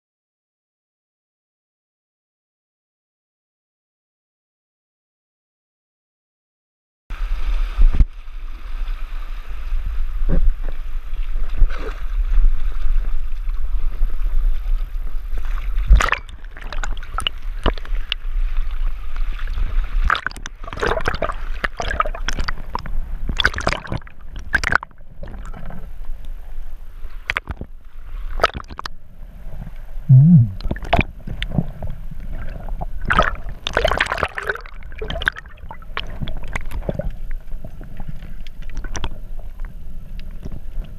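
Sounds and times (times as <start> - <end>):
muffled water sloshing and gurgling: 7.1 - 40.9
water splashes: 7.1 - 40.9
steady low rumble: 30.0 - 30.7.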